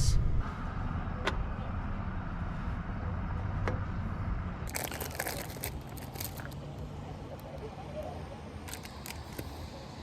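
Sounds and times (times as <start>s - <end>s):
low steady rumble: 0.0s - 10.0s
crinkling and crunching: 4.6s - 6.9s, 8.6s - 9.6s.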